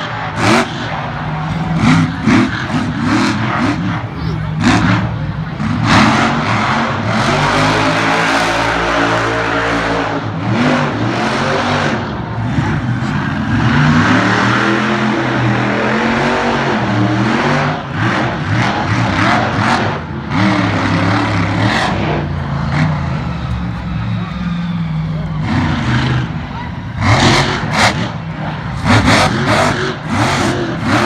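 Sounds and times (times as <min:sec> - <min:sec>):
monster truck engine revving: 0:00.0 - 0:31.0.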